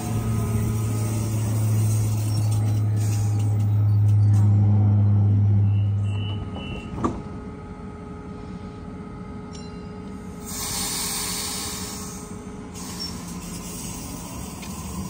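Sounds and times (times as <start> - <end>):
train equipment humming: 0.0 - 15.0
burst of air hissing: 10.5 - 14.4.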